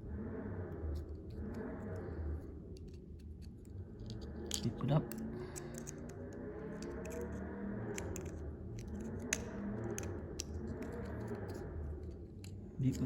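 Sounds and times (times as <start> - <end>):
low hum: 0.0 - 13.0
small metal parts clicking: 2.8 - 13.0.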